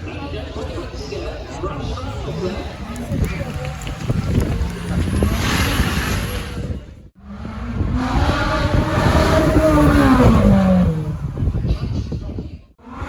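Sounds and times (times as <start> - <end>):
loud car engine revving: 2.3 - 11.7.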